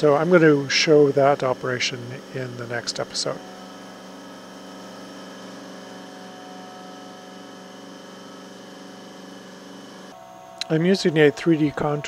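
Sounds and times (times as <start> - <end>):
milling machine hum and whine: 0.0 - 12.0.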